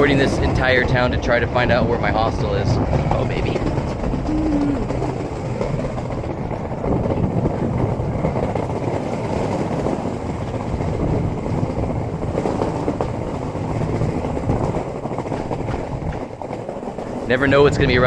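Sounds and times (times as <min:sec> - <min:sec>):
skateboard wheels rolling on street: 0:00.0 - 0:18.0.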